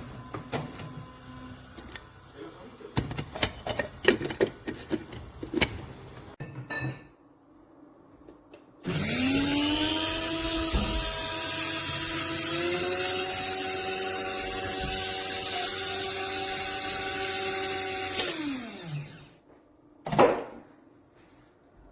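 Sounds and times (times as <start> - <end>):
coffee grinder motor whine: 8.9 - 19.4.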